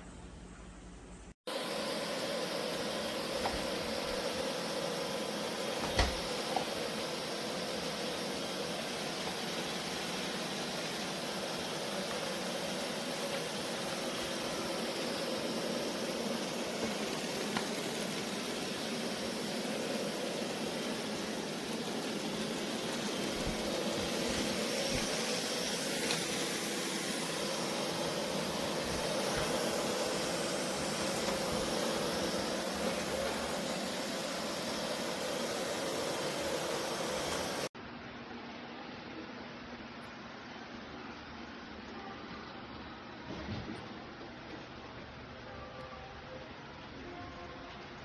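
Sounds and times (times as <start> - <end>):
robot vacuum motor whirring: 2.6 - 37.7.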